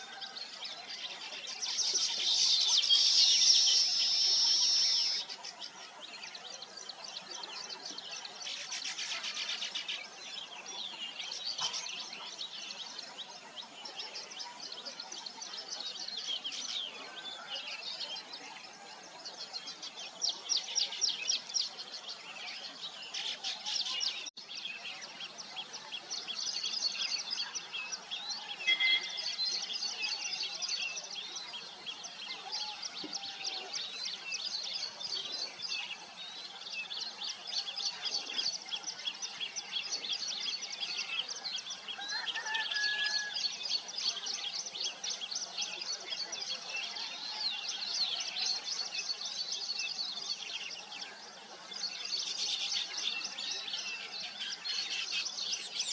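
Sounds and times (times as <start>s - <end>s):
weaver birds chattering: 0.0s - 18.6s.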